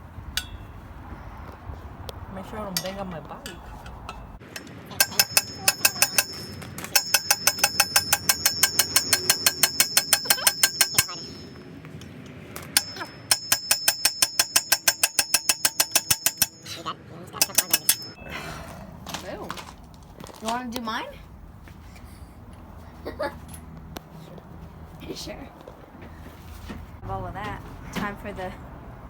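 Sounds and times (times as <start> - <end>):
hammer striking metal: 0.4 - 0.7, 2.8 - 11.6, 12.7 - 16.7, 17.4 - 18.2.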